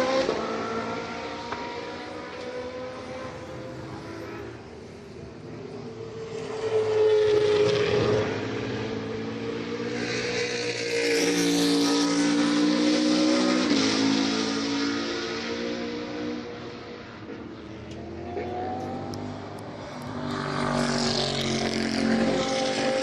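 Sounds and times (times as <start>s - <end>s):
race cars passing at speed: 0.0s - 23.0s.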